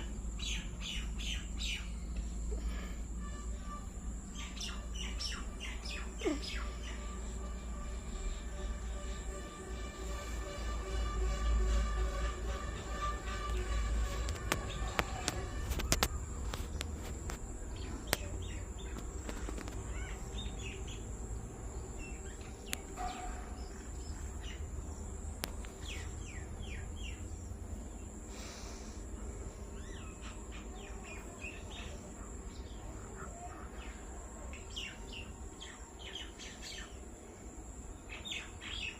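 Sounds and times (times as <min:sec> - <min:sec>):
small birds chirping: 0:00.0 - 0:09.2, 0:11.4 - 0:38.9
low steady rumble: 0:00.0 - 0:30.7.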